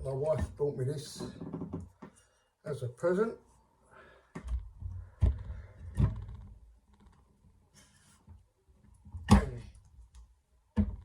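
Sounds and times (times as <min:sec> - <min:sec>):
objects knocking on hard surface: 0:10.8 - 0:11.0.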